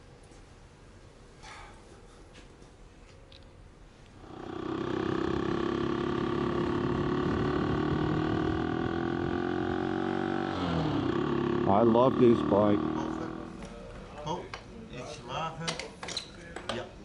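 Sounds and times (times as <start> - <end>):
motorcycle engine running: 4.2 - 14.0.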